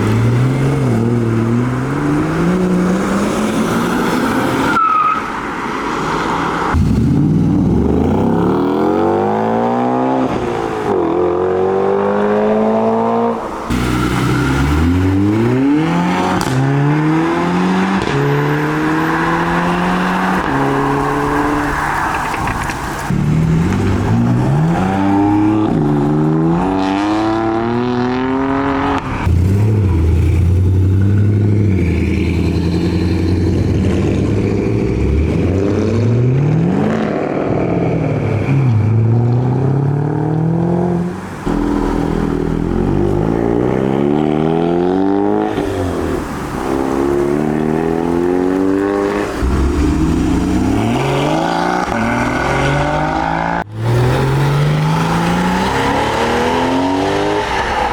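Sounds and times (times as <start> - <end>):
car engines revving and accelerating: 0.0 - 57.9.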